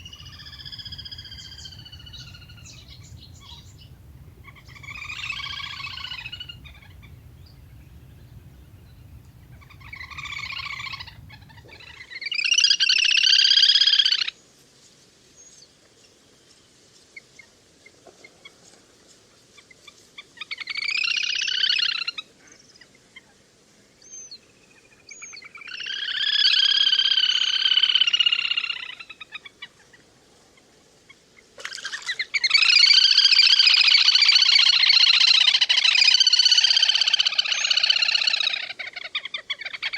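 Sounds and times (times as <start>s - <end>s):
grebe trilling calls: 0.0s - 12.0s.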